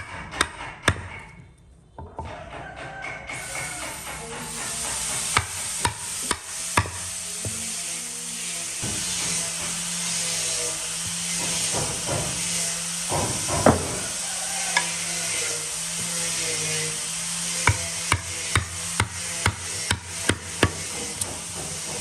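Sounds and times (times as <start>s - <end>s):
tool scraping: 0.0s - 22.0s
power tool hissing and humming: 3.3s - 22.0s
sharp knocks: 11.3s - 14.1s.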